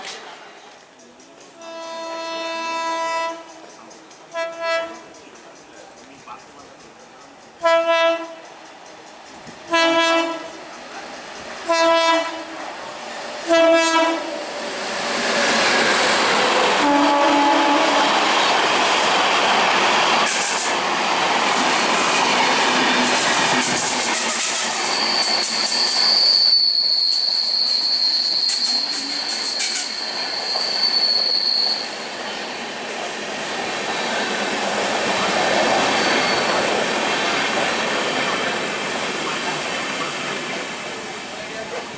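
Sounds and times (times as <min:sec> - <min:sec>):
train passing rush: 0:00.0 - 0:41.9
train horn blasts: 0:01.6 - 0:03.6, 0:04.3 - 0:05.2, 0:07.6 - 0:08.4, 0:09.7 - 0:10.5, 0:11.7 - 0:12.6, 0:13.5 - 0:14.4, 0:16.8 - 0:18.4.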